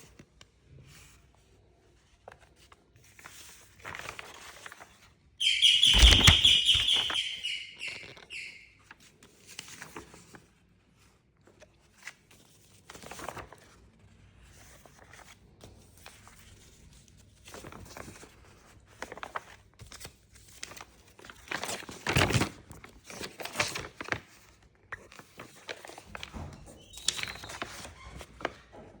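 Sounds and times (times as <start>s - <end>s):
paper rustling and crinkling: 2.0s - 5.1s, 5.9s - 7.1s, 9.4s - 28.6s
pulsing high tone: 5.4s - 8.6s.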